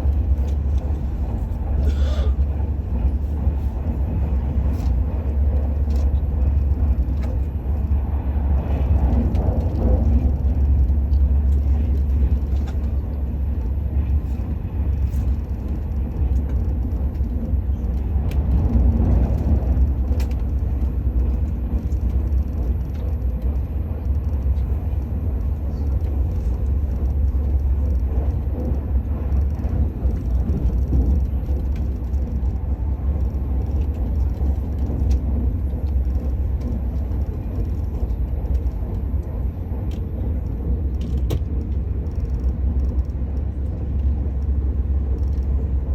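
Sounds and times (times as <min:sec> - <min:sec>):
train low rumble inside carriage: 0:00.0 - 0:45.9.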